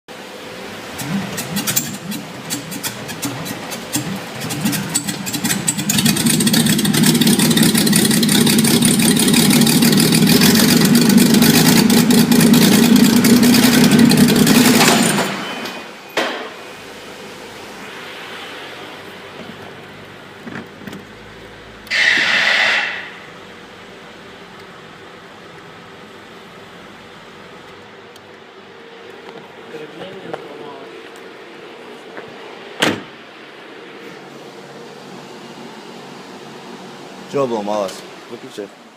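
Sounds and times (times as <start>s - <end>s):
car engine cranking and running: 0.6s - 15.5s.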